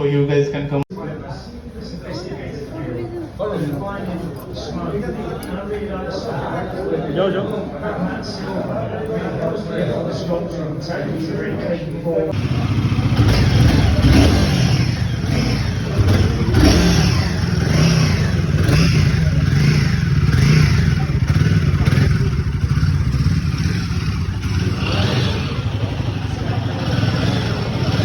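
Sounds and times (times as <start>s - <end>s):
motorcycle engine revving: 12.3s - 28.0s.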